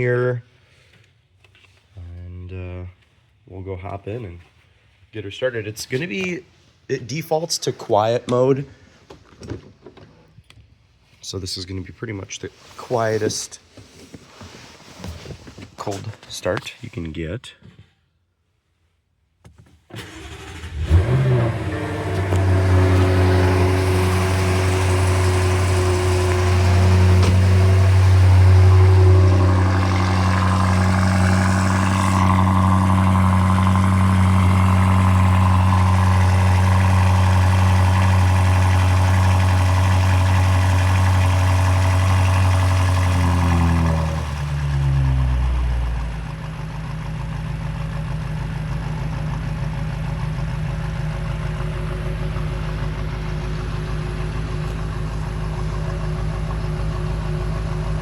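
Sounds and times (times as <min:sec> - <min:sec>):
car engine idling: 0:20.0 - 0:58.0.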